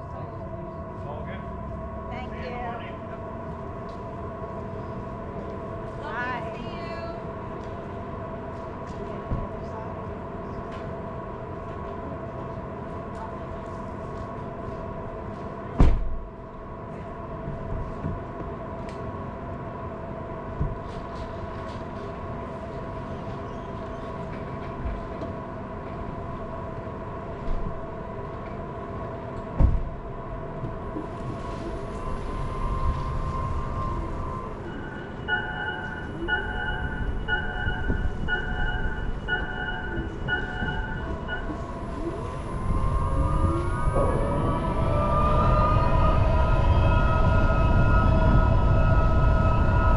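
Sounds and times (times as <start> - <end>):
repeating beeping tone: 31.8 - 44.7.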